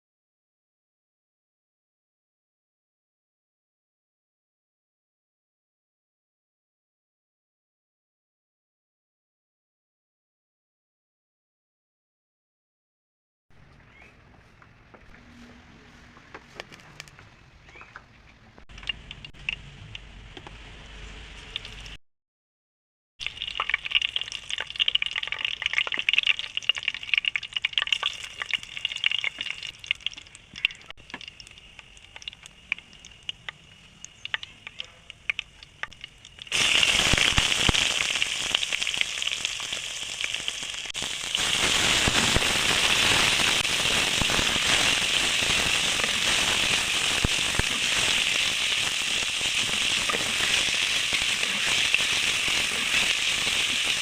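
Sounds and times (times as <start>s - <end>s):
oil crackling and popping: 16.5s - 20.6s, 21.4s - 22.0s, 23.2s - 54.0s
loud steady sizzle: 18.7s - 22.0s, 23.2s - 54.0s.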